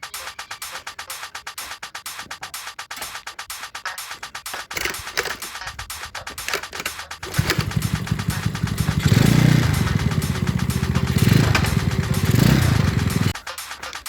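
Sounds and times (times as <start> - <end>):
scooter engine revving: 7.2 - 13.4.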